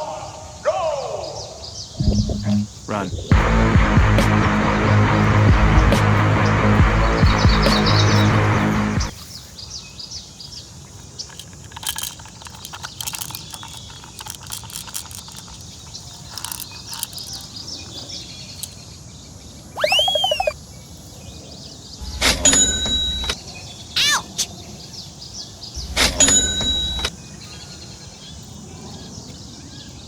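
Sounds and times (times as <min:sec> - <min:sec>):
bird chirps: 0:00.0 - 0:29.9
outdoor ambience: 0:00.0 - 0:30.0
rising and falling call: 0:00.7 - 0:09.1, 0:19.8 - 0:20.6
music: 0:02.0 - 0:02.7, 0:03.3 - 0:09.1.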